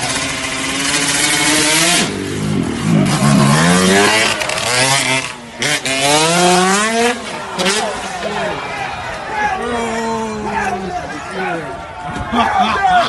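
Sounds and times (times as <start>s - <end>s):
motorcycle engine accelerating: 0.0s - 8.6s.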